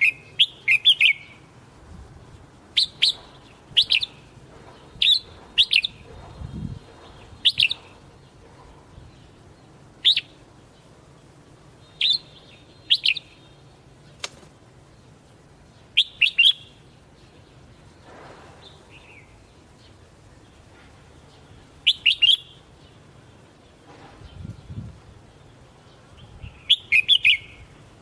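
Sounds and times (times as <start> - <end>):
bird calling sharp notes: 0.0 - 1.5, 16.0 - 16.8, 21.8 - 22.7, 26.6 - 27.7.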